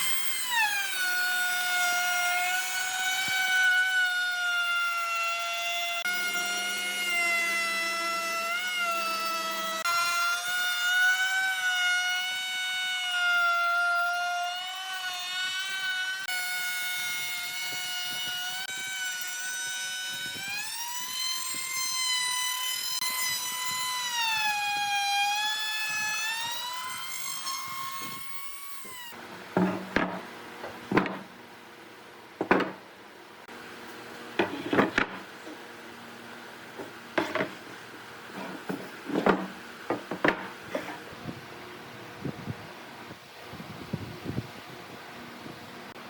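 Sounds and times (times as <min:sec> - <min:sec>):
wood lathe whine: 0:00.0 - 0:29.2
sharp wooden knocks: 0:29.6 - 0:30.2, 0:30.9 - 0:31.3, 0:32.4 - 0:32.8, 0:38.6 - 0:40.9.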